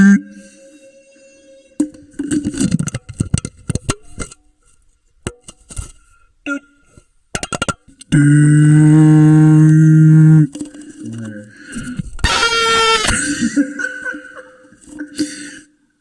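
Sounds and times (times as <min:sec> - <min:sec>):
knocks and scrapes on can: 0:01.9 - 0:04.4.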